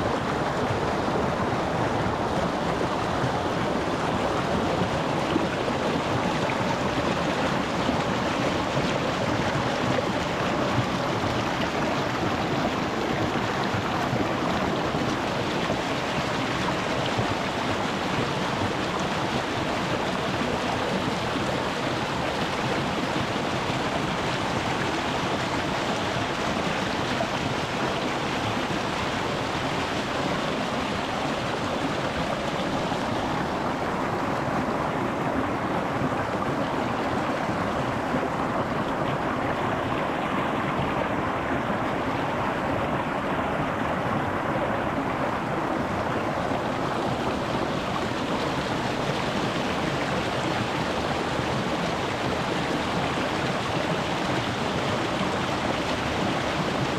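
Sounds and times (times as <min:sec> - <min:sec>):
stream running over rocks: 0:00.0 - 0:56.9.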